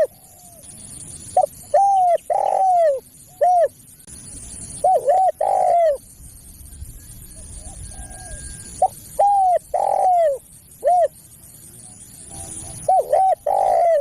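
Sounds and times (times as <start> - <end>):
dove cooing: 0.0 - 0.7, 1.4 - 3.8, 4.8 - 6.1, 7.3 - 11.2, 11.8 - 14.0.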